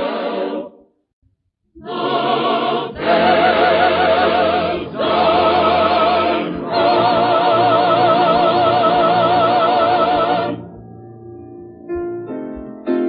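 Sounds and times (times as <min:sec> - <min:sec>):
choir singing a slow hymn: 0:00.0 - 0:00.8, 0:01.8 - 0:10.6.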